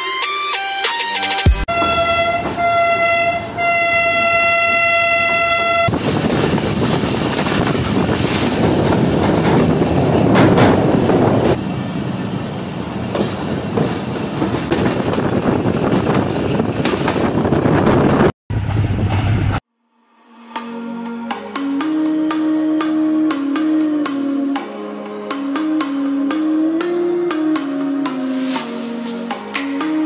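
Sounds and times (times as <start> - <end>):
locomotive horn: 1.0 - 6.0
train rumbling on rails: 1.7 - 19.6.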